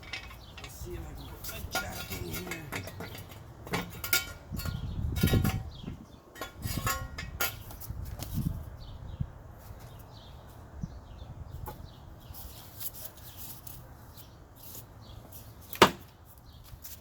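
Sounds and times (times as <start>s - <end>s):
light metal clicks and scrapes: 0.0s - 5.8s, 6.4s - 8.6s.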